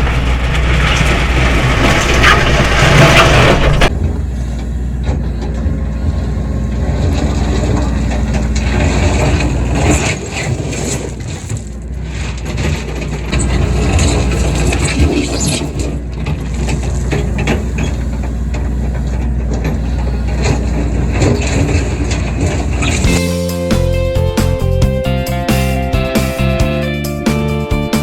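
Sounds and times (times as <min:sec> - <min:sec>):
bucket scraping gravel: 0:00.0 - 0:04.0, 0:06.2 - 0:25.2
crunch and clatter of stones: 0:00.0 - 0:04.0, 0:04.7 - 0:23.3
excavator engine under load: 0:00.0 - 0:28.0.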